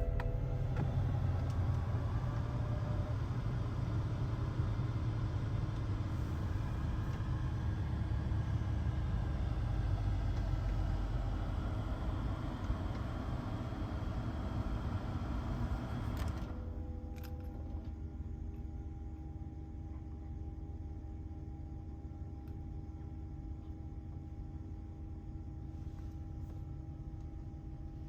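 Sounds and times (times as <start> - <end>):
car engine idling: 0.0 - 4.5.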